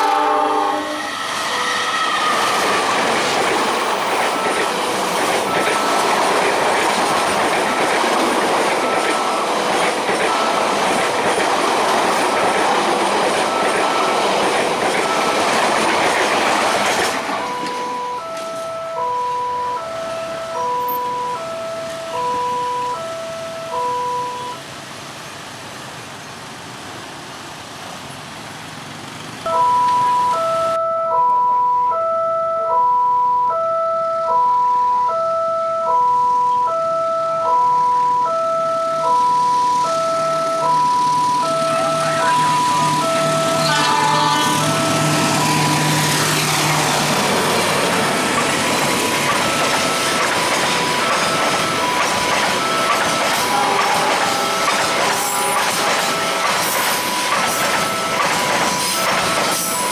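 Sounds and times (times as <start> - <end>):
level crossing two-note alarm: 0.0 - 6.5, 17.0 - 24.7, 29.5 - 59.9
train wheels rushing on rail: 0.0 - 30.7, 40.6 - 59.9.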